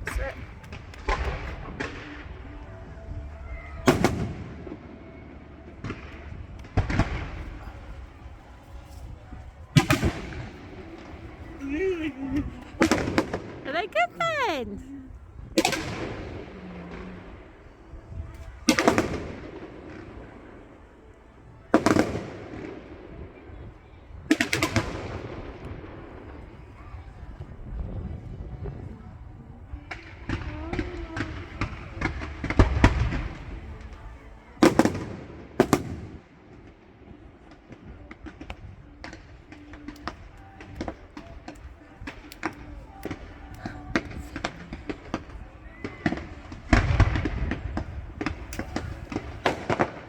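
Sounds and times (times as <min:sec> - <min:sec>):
fireworks bursting with echo: 0:00.0 - 0:02.8, 0:09.8 - 0:14.9, 0:34.6 - 0:50.0.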